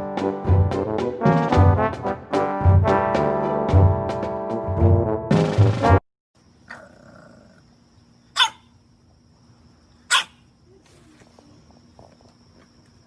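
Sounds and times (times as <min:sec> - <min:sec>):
brass music: 0:00.0 - 0:06.0
dog barking: 0:08.4 - 0:08.7, 0:10.1 - 0:10.4.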